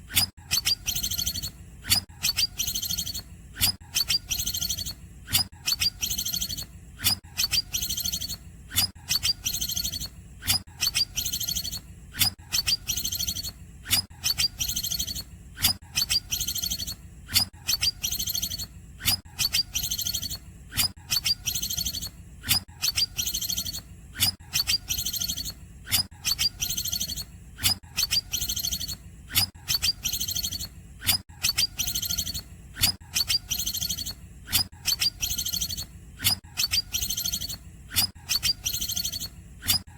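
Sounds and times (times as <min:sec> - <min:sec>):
bird singing chattering trill: 0:00.5 - 0:01.6, 0:02.2 - 0:03.2, 0:04.0 - 0:05.0, 0:05.7 - 0:06.6, 0:07.4 - 0:08.4, 0:09.1 - 0:10.1, 0:10.8 - 0:11.8, 0:12.6 - 0:13.5, 0:14.2 - 0:15.2, 0:16.0 - 0:17.0, 0:17.7 - 0:18.7, 0:19.4 - 0:20.4, 0:21.1 - 0:22.1, 0:22.8 - 0:23.8, 0:24.6 - 0:25.6, 0:26.2 - 0:27.3, 0:28.0 - 0:29.0, 0:29.7 - 0:30.7, 0:31.4 - 0:32.4, 0:33.2 - 0:34.2, 0:34.8 - 0:35.9, 0:36.6 - 0:37.6, 0:38.3 - 0:39.3.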